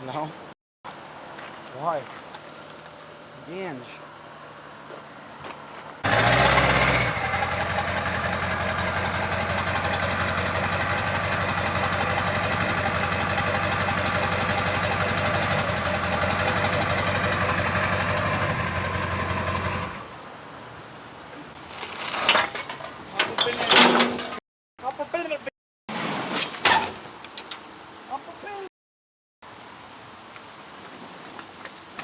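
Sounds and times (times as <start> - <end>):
vehicle engine idling: 2.5 - 20.2.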